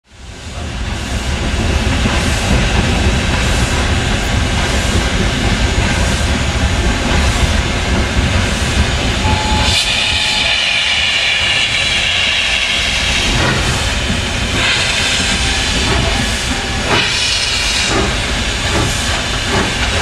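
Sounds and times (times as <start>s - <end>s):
steam locomotive rumble: 0.1s - 20.0s
steam chuffs: 0.6s - 20.0s
steam hiss: 8.8s - 20.0s.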